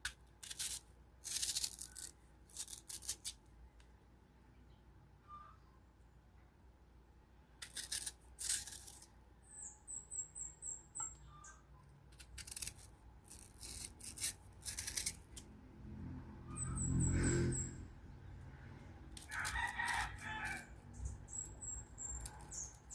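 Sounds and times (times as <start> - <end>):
knife cutting crunchy mango: 7.6 - 9.1, 12.1 - 15.5
rooster crowing: 19.3 - 20.8.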